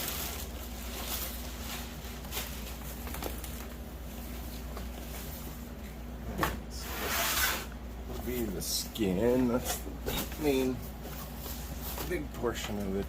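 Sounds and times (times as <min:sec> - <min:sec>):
fabric and packaging rustling: 0:00.0 - 0:05.8, 0:09.4 - 0:13.0.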